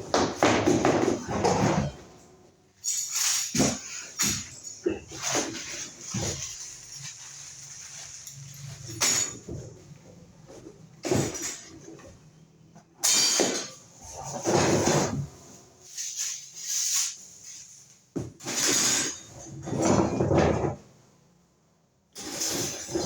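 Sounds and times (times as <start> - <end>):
plastic scraping and rattling: 3.1 - 12.2.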